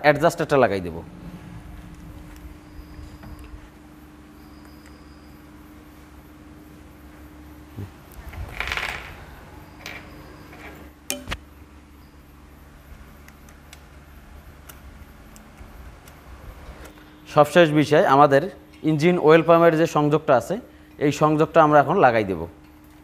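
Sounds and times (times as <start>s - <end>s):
steady low hum: 0.0s - 23.0s
metal tools clinking and scraping: 8.3s - 11.4s.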